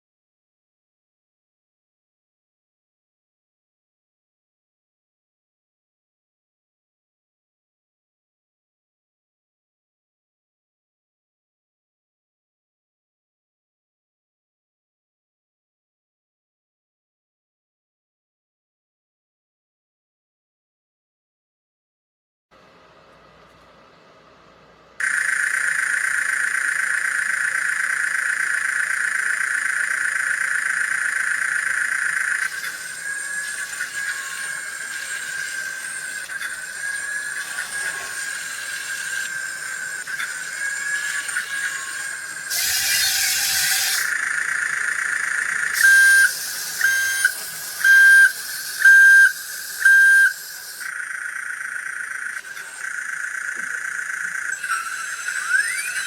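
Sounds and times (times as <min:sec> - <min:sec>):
small electric motor whining: 0:25.0 - 0:51.1, 0:51.7 - 0:56.0
electronic beeps: 0:25.0 - 0:56.0.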